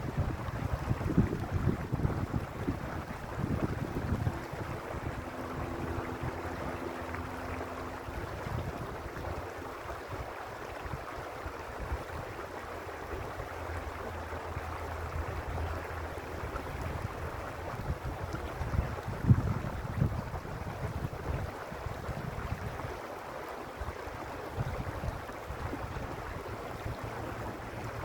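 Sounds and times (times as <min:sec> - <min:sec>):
creek water rushing over stones: 0:00.0 - 0:28.0
faint steady hum: 0:00.0 - 0:28.0.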